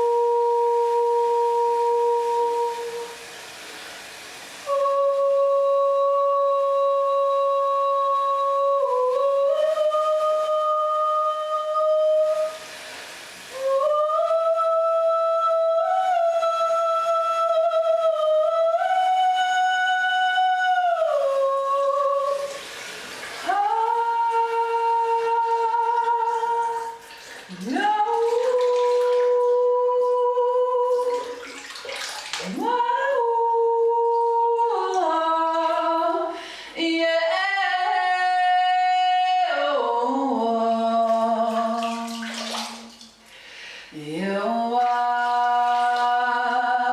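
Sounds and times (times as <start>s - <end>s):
woman singing wordless notes: 0.0s - 3.2s, 4.6s - 12.7s, 13.5s - 22.6s, 23.4s - 31.6s, 32.4s - 43.0s, 43.9s - 46.9s
singer breathing: 36.3s - 36.8s, 43.2s - 44.0s.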